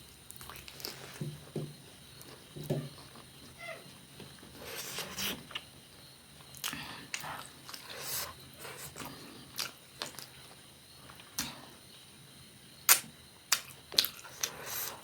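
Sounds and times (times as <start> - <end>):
person chewing food: 0.3 - 1.2, 6.4 - 10.4, 12.9 - 15.0
mouth smacks and clicks: 6.5 - 10.3, 12.9 - 15.0.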